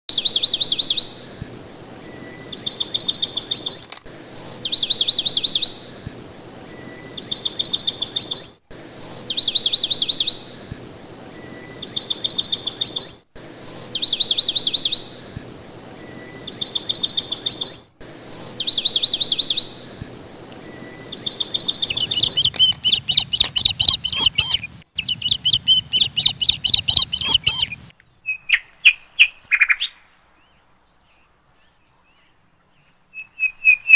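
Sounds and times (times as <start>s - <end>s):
high trilled bird chirps: 2.3s - 5.8s, 6.8s - 10.6s, 11.4s - 15.2s, 16.2s - 19.8s, 20.7s - 28.7s.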